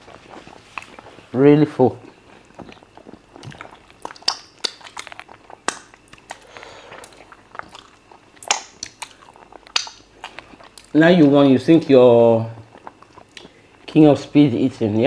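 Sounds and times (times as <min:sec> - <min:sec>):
person chewing: 0:00.0 - 0:01.4, 0:02.0 - 0:14.3
wet mouth clicks and lip smacks: 0:02.7 - 0:10.9, 0:12.7 - 0:13.6.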